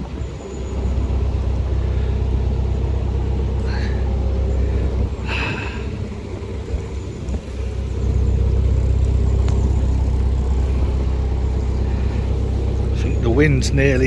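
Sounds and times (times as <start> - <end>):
boat engine running: 0.0 - 14.0
wind gusting across microphone: 0.0 - 14.0.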